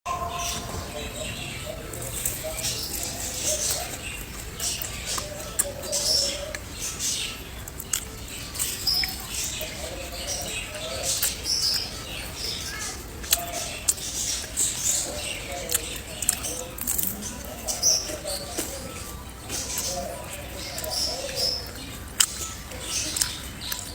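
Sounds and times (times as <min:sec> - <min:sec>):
crisp crunching and chewing: 0:00.4 - 0:23.9.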